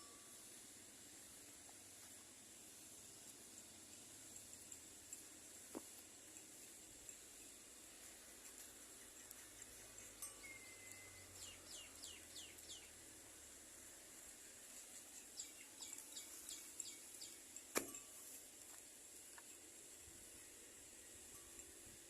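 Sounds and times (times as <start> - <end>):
bird chirps: 8.9 - 13.0, 15.0 - 17.4.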